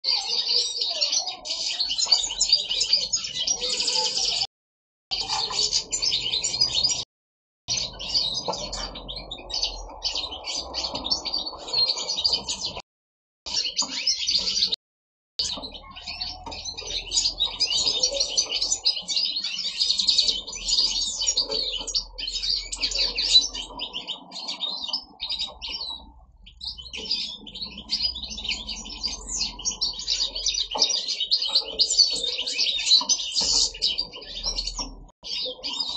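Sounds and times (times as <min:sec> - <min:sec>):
finches twittering: 0:15.4 - 0:35.9.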